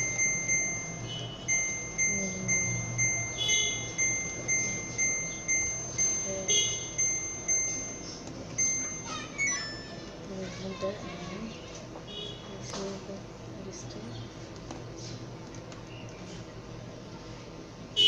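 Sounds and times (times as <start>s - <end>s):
washing machine beeping: 0.0s - 11.4s.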